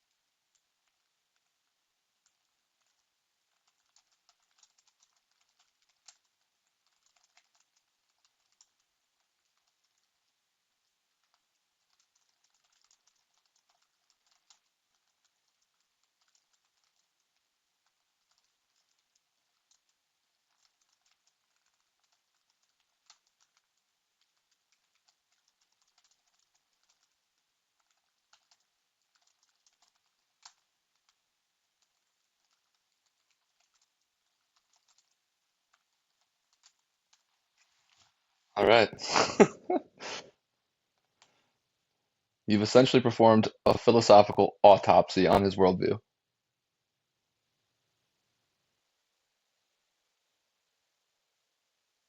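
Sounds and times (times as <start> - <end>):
typing on computer keyboard: 0.5 - 10.4, 11.1 - 31.2, 31.8 - 37.3.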